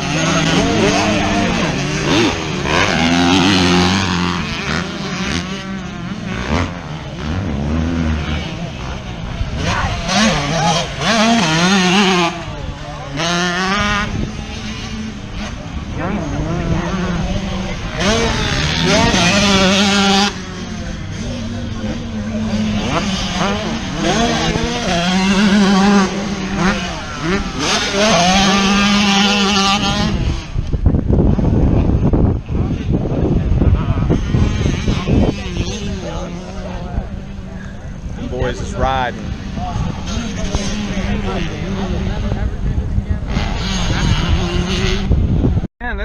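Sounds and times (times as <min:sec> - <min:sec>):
loud rushing noise: 0:00.0 - 0:45.7
vehicle engine droning: 0:00.0 - 0:45.7
motorcycle engines revving: 0:00.0 - 0:46.0
road noise: 0:00.0 - 0:46.0.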